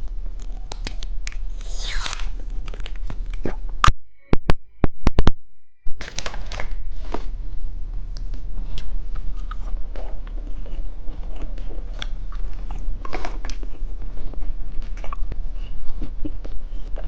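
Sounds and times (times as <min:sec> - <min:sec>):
plastic wrapper tearing and crinkling: 0:06.0 - 0:07.2.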